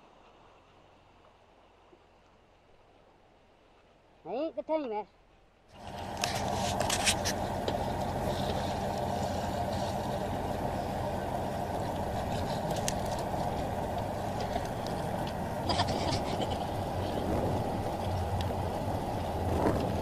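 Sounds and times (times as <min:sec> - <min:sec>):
water noise: 0:00.0 - 0:20.0
boat engine running: 0:05.7 - 0:20.0.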